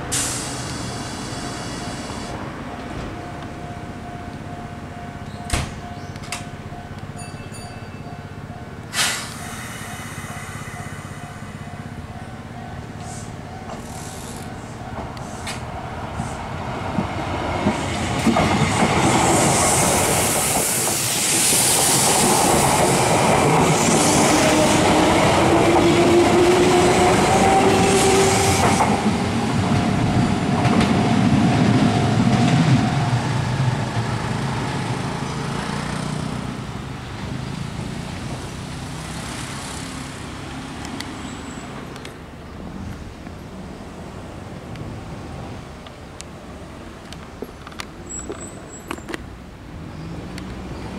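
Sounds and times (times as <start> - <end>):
train whine: 0.0 - 38.5
train wheels clacking over rail joints: 16.2 - 31.6.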